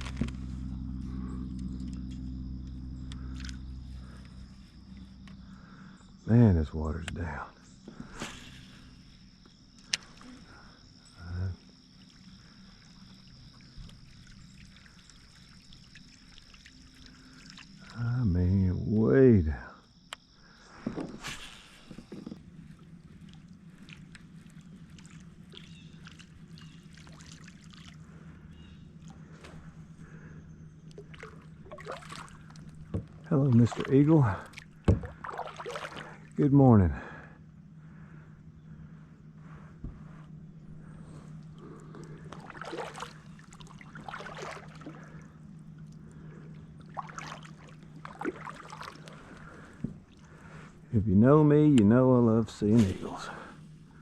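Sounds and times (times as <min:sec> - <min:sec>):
low hum: 0:00.0 - 0:54.0
small splashes: 0:11.9 - 0:18.0, 0:21.1 - 0:28.3, 0:30.9 - 0:36.4, 0:41.5 - 0:50.7
water trickling and dripping: 0:11.9 - 0:18.1, 0:22.7 - 0:28.0, 0:30.9 - 0:36.2, 0:41.4 - 0:50.6.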